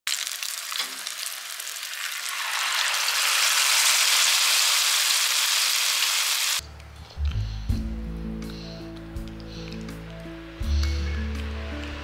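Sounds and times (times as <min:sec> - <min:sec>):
batter frying in oil: 0:00.0 - 0:06.6.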